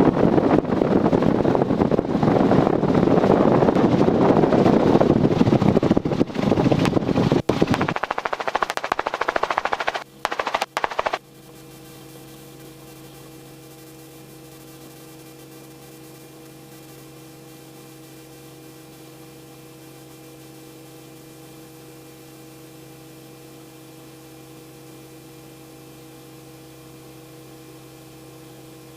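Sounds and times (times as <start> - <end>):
electrical hum: 7.5 - 11.2.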